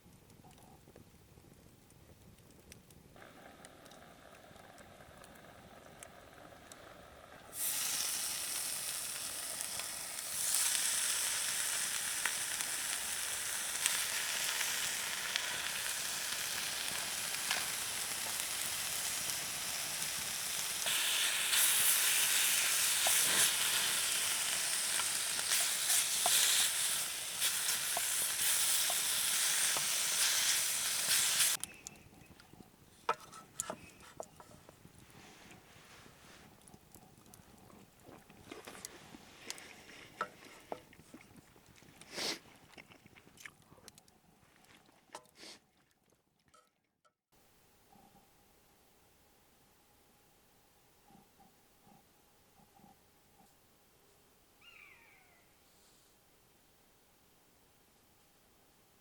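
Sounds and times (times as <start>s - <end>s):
food sizzling in a pan: 7.5s - 31.6s
small pops of frying: 7.5s - 34.7s.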